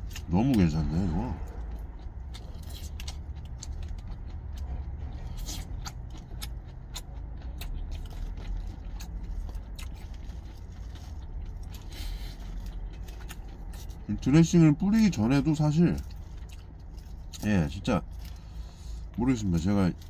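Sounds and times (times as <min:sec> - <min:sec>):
crisp chewing of salad: 0:00.0 - 0:20.0
low steady rumble: 0:00.0 - 0:20.0.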